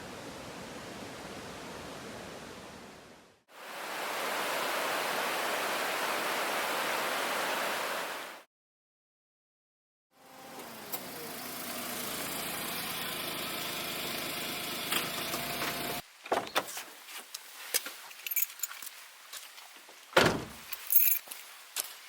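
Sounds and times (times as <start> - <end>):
car engine running: 10.4 - 16.0.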